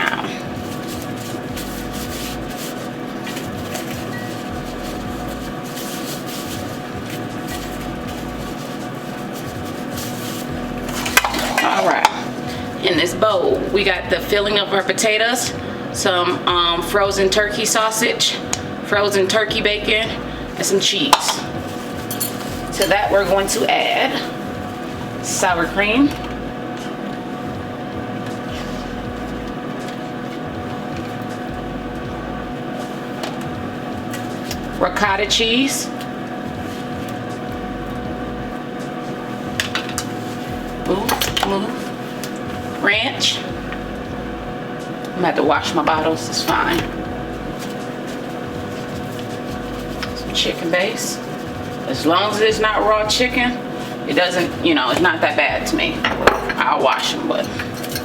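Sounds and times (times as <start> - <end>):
light rubbing and handling noises: 0.0 - 12.8, 20.9 - 27.4, 45.8 - 58.0
kitchen appliance humming: 0.0 - 58.0.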